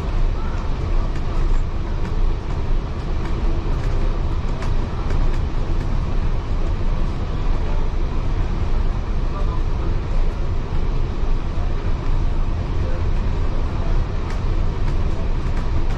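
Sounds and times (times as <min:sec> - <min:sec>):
light ticks and rattles: 0:00.0 - 0:07.7
train wheels rumbling on track: 0:00.0 - 0:15.9.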